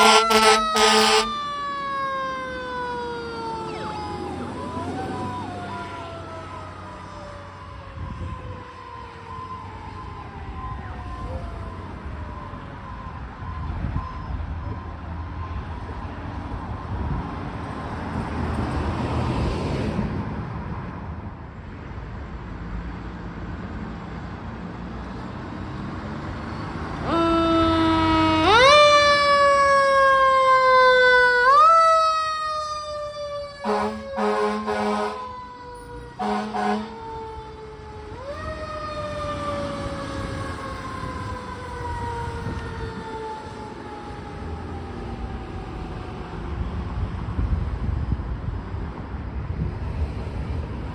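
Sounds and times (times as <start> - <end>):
horn blasts: 0.0 - 1.4, 27.0 - 28.7, 33.6 - 35.4, 36.2 - 37.2
fire engine siren wailing: 0.0 - 16.9, 26.1 - 48.2
engine and road noise: 0.0 - 50.9.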